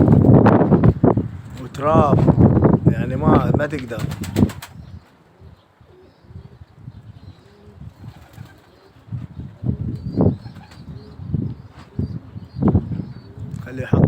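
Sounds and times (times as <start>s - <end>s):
wind buffeting microphone: 0.0s - 14.0s
pigeons cooing: 3.9s - 13.7s.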